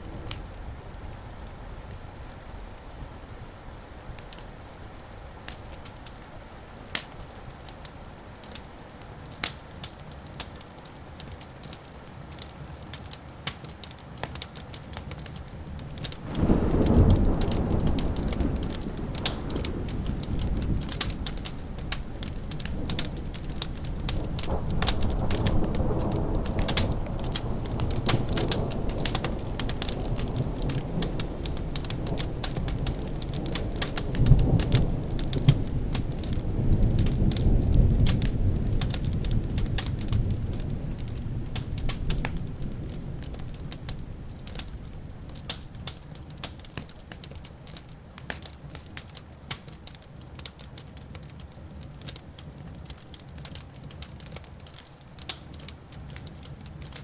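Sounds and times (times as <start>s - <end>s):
fireplace crackling and popping: 0.0s - 57.0s
low thunder rumble: 15.8s - 45.2s.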